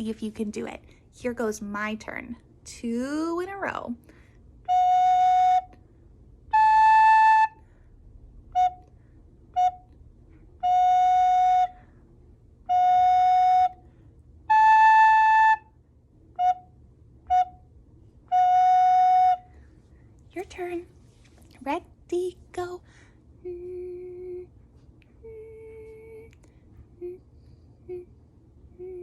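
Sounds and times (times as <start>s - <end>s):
recorder playing a simple tune: 4.7s - 5.8s, 6.5s - 7.6s, 9.5s - 10.0s, 10.6s - 11.8s, 12.7s - 13.8s, 14.5s - 15.7s, 16.4s - 17.6s, 18.3s - 19.5s.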